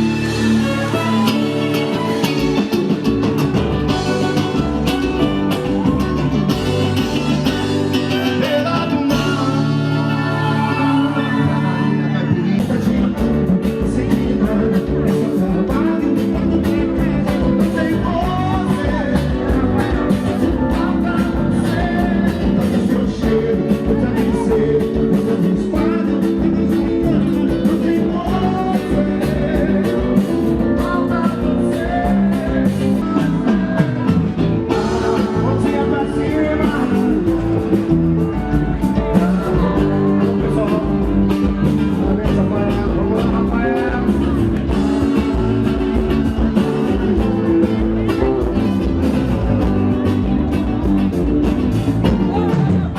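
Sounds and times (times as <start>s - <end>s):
band music with guitar and singing: 0.0s - 52.9s.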